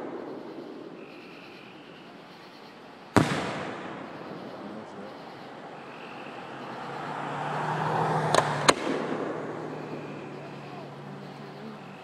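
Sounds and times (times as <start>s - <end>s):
rushing firework noise: 0.0s - 12.0s
firework shell burst rumble: 3.1s - 4.7s
sharp firework bang: 3.2s - 4.4s, 8.3s - 9.6s.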